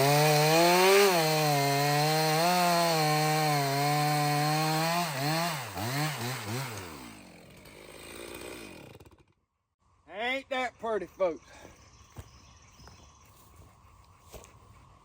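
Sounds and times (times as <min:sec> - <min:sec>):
chainsaw revving: 0:00.0 - 0:09.4.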